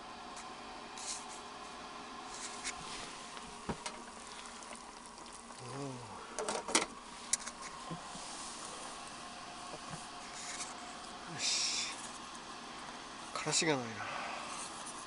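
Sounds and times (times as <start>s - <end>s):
faint background hum: 0.0s - 15.0s
person murmuring: 5.6s - 6.2s.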